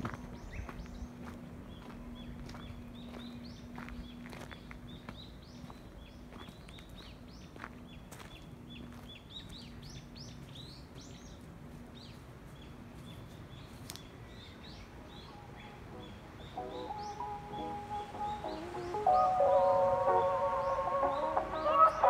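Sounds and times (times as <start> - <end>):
footsteps on gravel: 0.0 - 9.8
small birds chirping: 0.0 - 22.0.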